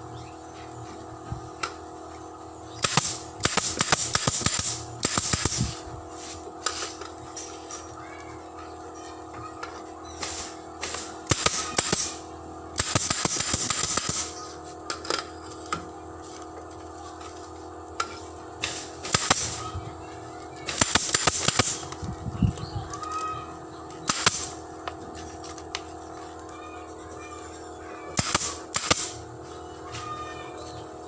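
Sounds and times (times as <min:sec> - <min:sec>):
steady hum: 0:00.0 - 0:31.0
pneumatic staple gun firing: 0:02.8 - 0:07.1, 0:10.2 - 0:12.2, 0:12.8 - 0:14.4, 0:18.6 - 0:19.7, 0:20.7 - 0:22.0, 0:24.0 - 0:24.6, 0:28.2 - 0:29.2.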